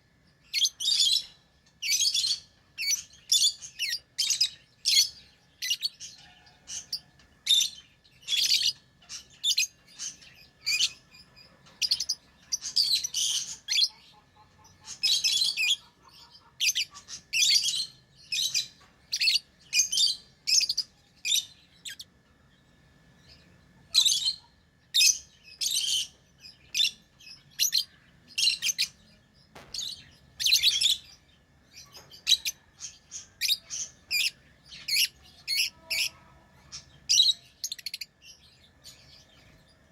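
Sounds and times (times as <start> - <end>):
lovebirds chirping: 0.0 - 39.9
birds rapid chattering: 23.3 - 39.8.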